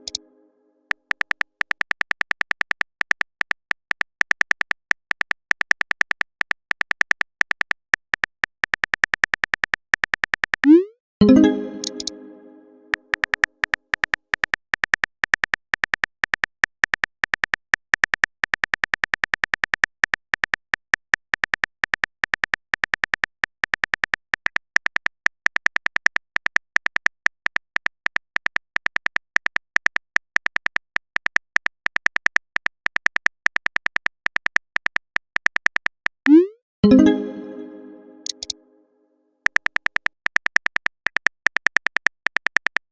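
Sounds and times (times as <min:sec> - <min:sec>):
electronic typing clicks with beeps: 0:01.2 - 0:17.1, 0:29.2 - 0:38.6.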